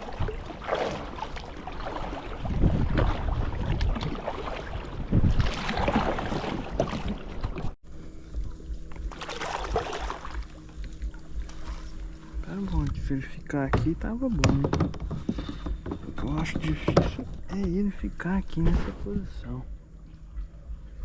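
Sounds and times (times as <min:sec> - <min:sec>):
splashy water noise: 0:00.0 - 0:07.8, 0:09.1 - 0:11.1
low motor hum: 0:00.0 - 0:21.0
wind buffeting microphone: 0:02.2 - 0:06.8.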